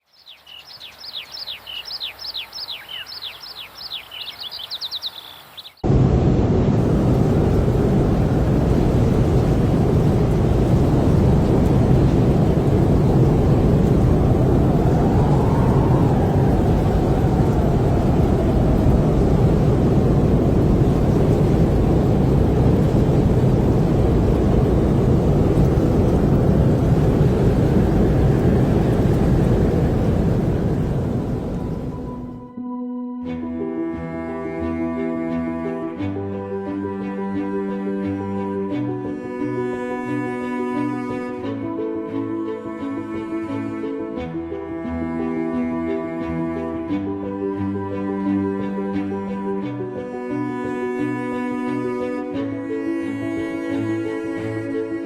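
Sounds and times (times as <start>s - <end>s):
bird whistling descending notes: 0.5s - 5.8s, 14.6s - 19.2s
loud steady gale: 5.8s - 32.4s.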